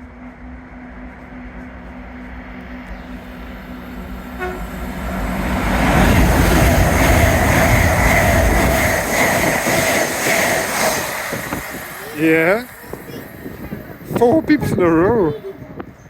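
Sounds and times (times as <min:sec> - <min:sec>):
train passing at speed: 0:00.0 - 0:16.0
train horn toot: 0:04.3 - 0:05.0.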